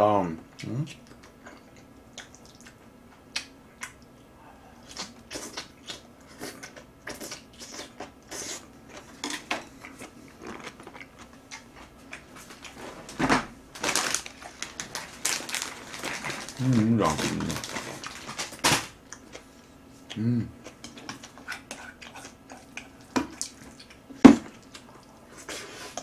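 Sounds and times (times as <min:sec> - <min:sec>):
person chewing and smacking: 0:00.6 - 0:12.8, 0:19.0 - 0:26.0.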